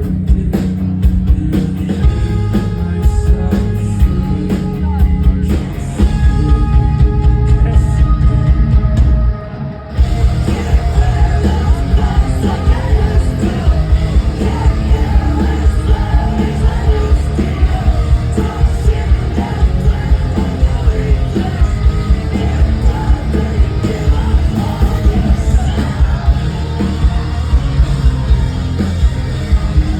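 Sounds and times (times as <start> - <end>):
distorted guitars: 0.0 - 29.9
live rock band playing: 0.0 - 29.9
yelled vocals: 9.9 - 29.9
pounding drums: 10.0 - 29.9.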